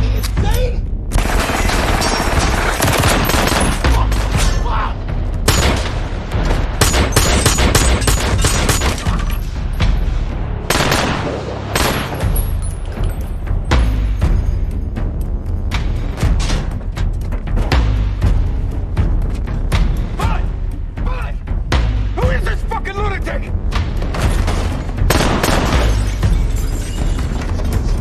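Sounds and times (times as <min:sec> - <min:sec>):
heavy rapid gunfire: 0:01.2 - 0:04.1, 0:10.7 - 0:12.2, 0:25.1 - 0:25.9.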